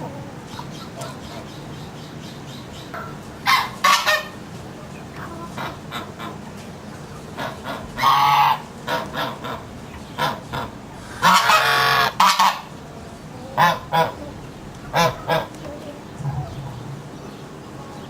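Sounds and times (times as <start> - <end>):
birds calling: 0.0 - 18.0.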